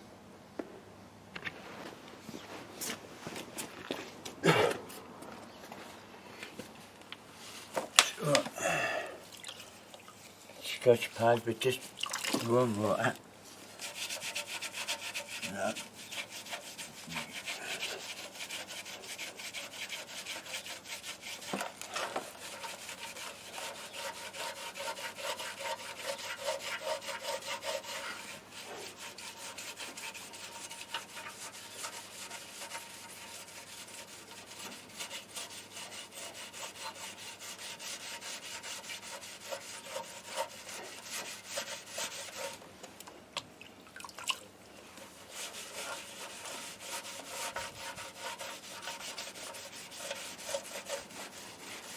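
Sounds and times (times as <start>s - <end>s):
hand scrubbing with abrasive: 9.2s - 42.6s, 45.0s - 51.9s.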